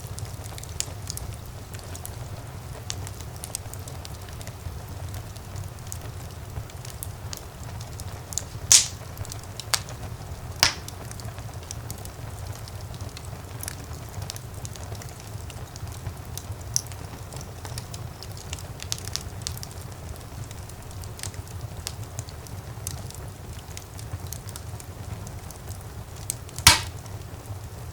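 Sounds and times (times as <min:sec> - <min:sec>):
low rumble of flames: 0:00.0 - 0:27.9
small fire crackles: 0:00.0 - 0:27.9
loud sharp log pops: 0:08.7 - 0:09.0, 0:10.6 - 0:10.9, 0:26.6 - 0:27.0.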